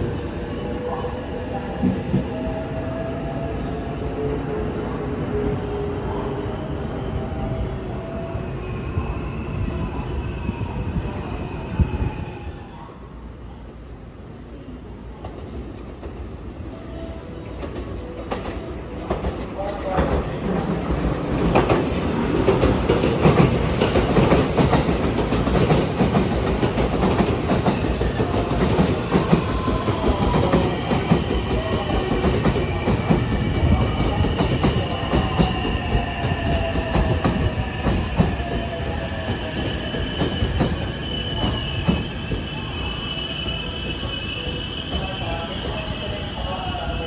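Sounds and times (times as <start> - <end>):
high brake squeal: 37.6 - 47.0.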